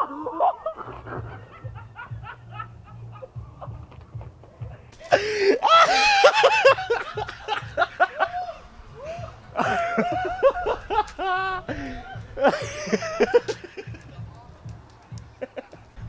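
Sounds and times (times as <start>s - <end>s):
person laughing hard: 0.0s - 3.7s, 5.0s - 14.1s.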